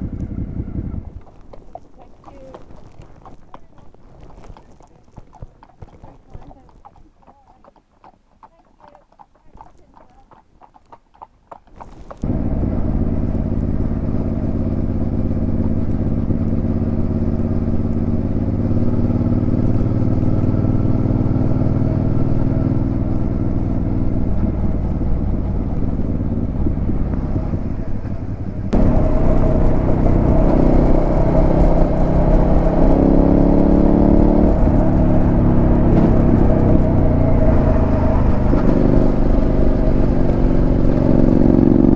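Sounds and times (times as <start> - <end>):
motorcycle engine accelerating: 0.0 - 3.4, 12.0 - 41.9.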